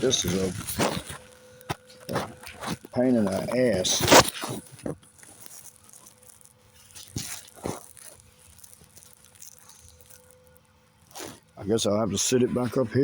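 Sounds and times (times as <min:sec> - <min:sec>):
phone handling knocks and scrapes: 0:00.0 - 0:04.9.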